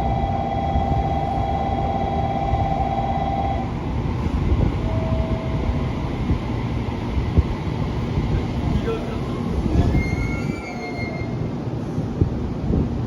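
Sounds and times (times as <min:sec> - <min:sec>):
pulsing whine: 0:00.0 - 0:07.4
electric train rumbling: 0:00.0 - 0:13.0
short tone: 0:04.8 - 0:05.8.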